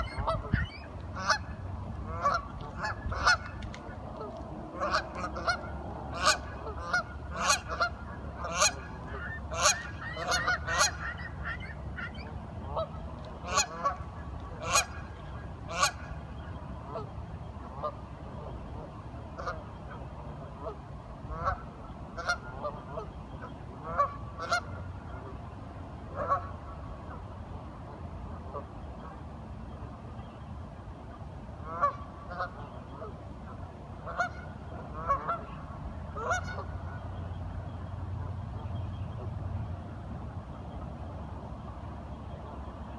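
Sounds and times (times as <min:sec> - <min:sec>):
ducks quacking: 0:00.0 - 0:16.2, 0:20.6 - 0:21.6, 0:22.2 - 0:24.8, 0:31.6 - 0:37.1
steady low rumble: 0:00.0 - 0:42.9.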